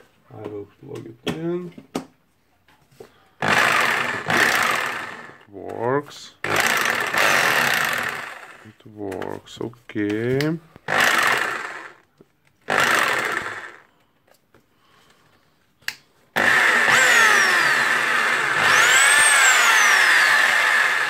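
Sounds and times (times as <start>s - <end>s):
rotary hammer drill running: 3.4s - 5.4s, 6.4s - 8.7s, 10.9s - 12.0s, 12.6s - 13.9s, 16.4s - 21.0s.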